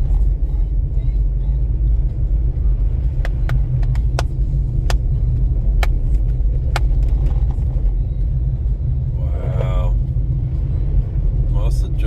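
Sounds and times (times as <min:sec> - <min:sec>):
car driving on snowy road: 0:00.0 - 0:12.0.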